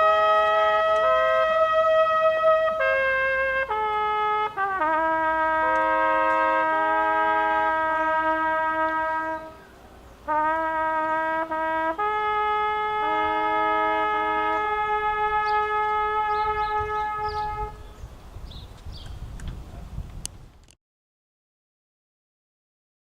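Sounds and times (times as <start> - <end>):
trumpet playing long notes: 0.0 - 18.0
faint outdoor background noise: 0.0 - 20.8.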